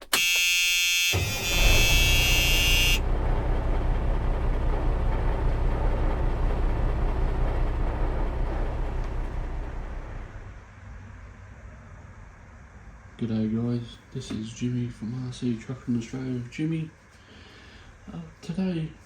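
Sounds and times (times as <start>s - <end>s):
truck horn blaring: 0.0s - 3.2s
low engine rumble: 1.2s - 11.8s.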